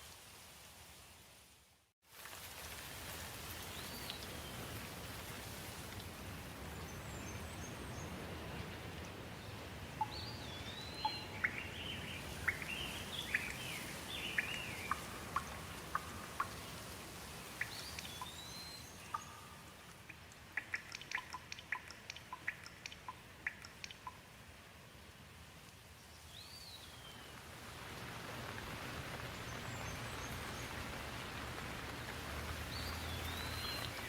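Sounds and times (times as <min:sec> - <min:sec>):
steady rain: 0:00.0 - 0:34.0
sharp ticks: 0:19.1 - 0:24.2
birds chirping and whistling: 0:32.7 - 0:34.0.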